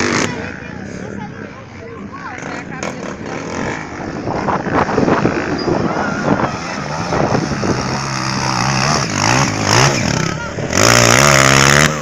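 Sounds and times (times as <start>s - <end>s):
dirt bike engine running: 2.4s - 12.0s
wind noise on microphone: 2.8s - 12.0s.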